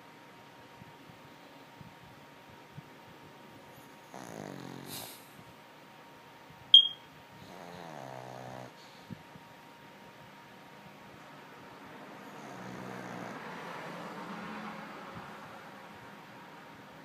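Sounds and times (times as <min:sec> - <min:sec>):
dog snoring: 0:03.8 - 0:05.3, 0:07.4 - 0:09.0, 0:12.2 - 0:13.9.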